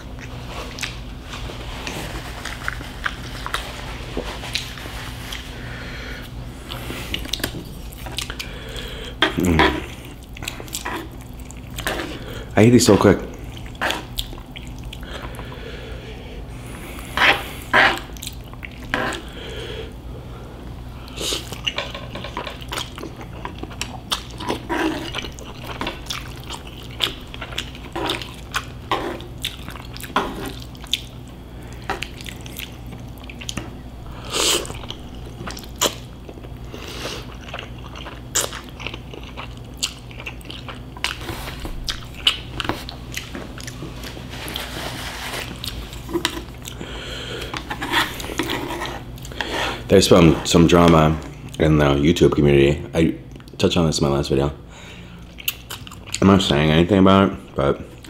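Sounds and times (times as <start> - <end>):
wet chewing smacks and clicks: 13.3 - 15.4, 18.0 - 19.2, 22.6 - 33.7, 34.6 - 36.6, 37.2 - 41.2, 41.8 - 43.8, 55.3 - 56.2.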